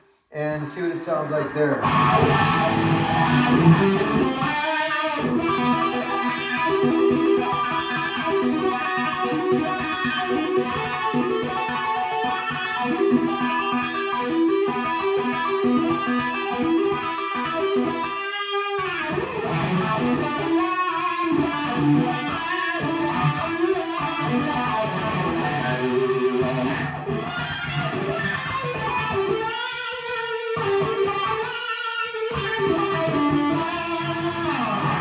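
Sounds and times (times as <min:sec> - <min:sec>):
distorted electric guitar with wah: 0:00.0 - 0:35.0.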